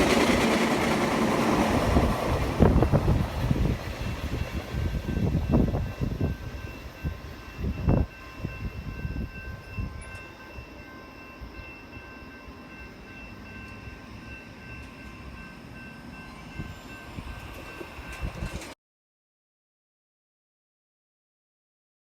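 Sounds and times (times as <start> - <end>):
train rumbling on rails: 0.0 - 18.8
faint high ringing tones: 4.0 - 18.7.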